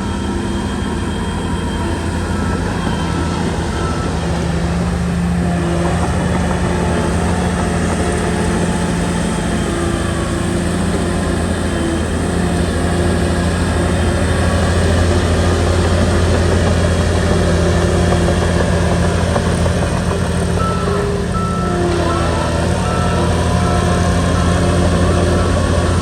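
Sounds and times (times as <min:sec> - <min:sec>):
bulldozer diesel engine running: 0:00.0 - 0:26.0.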